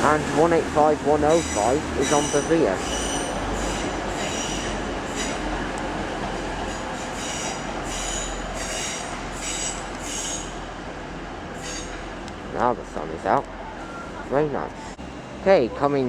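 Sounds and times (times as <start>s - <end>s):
train low rumble: 0.0s - 16.0s
train wheels squealing: 1.3s - 5.5s, 6.6s - 10.6s, 11.6s - 12.1s.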